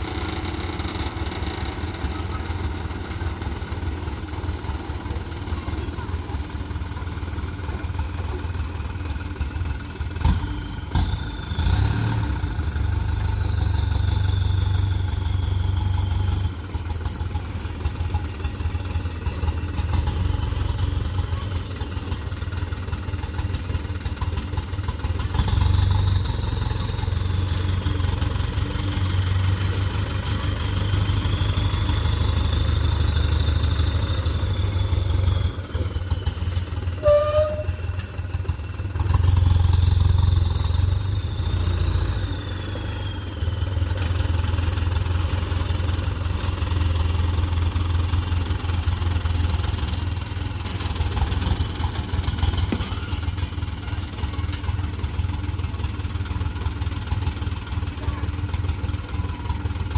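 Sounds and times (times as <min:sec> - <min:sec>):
diesel truck engine rumbling: 0:00.0 - 0:59.9
short tone: 0:36.9 - 0:38.0.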